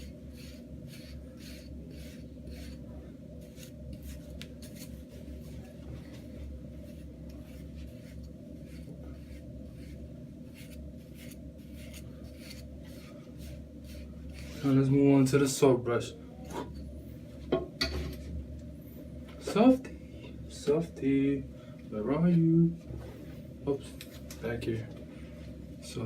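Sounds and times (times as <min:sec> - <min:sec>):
brush scratching over hair: 0:00.0 - 0:14.9
steady low hum: 0:00.0 - 0:26.0.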